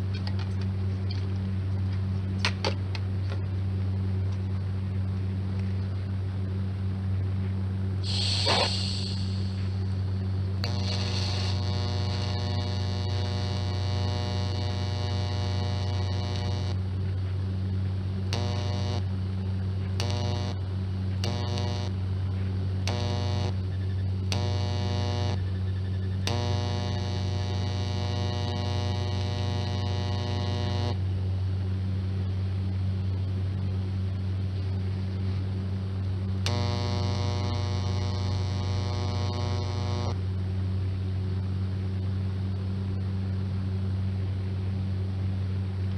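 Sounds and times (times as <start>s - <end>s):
steady mains hum: 0.0s - 45.9s
electric welder arc buzzing: 8.0s - 9.9s, 10.6s - 16.8s, 18.3s - 19.2s, 20.0s - 20.6s, 21.2s - 22.0s, 22.8s - 23.6s, 24.3s - 25.5s, 26.2s - 31.1s, 36.4s - 40.2s.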